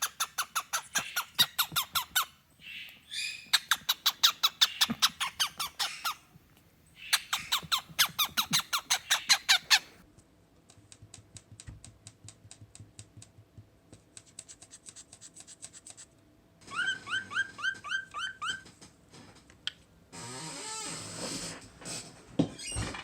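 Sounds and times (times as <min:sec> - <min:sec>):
cockatiel clicking chirps: 0:00.0 - 0:06.2, 0:07.0 - 0:09.9.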